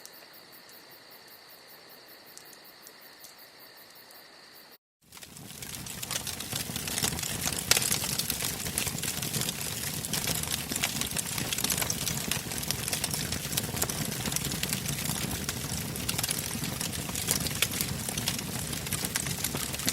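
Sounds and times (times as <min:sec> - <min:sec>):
bonfire crackling and popping: 0:05.0 - 0:19.9
low rush of burning: 0:05.1 - 0:19.9.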